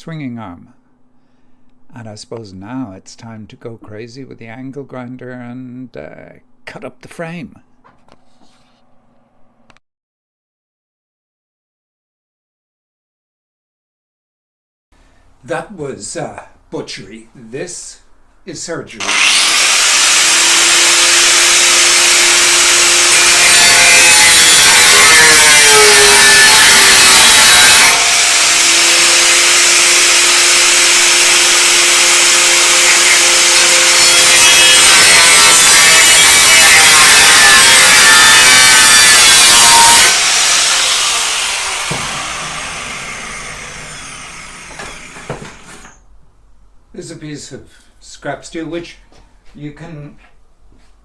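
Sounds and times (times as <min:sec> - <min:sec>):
angle grinder cutting steel: 0:19.0 - 0:46.0.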